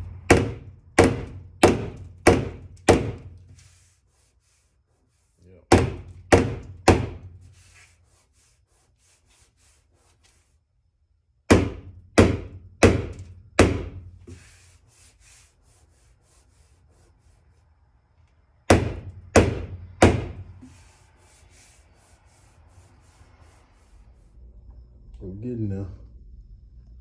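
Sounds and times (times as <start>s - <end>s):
hammer striking car body panel: 0.2s - 3.4s, 5.7s - 7.4s, 11.5s - 14.4s, 18.7s - 20.6s.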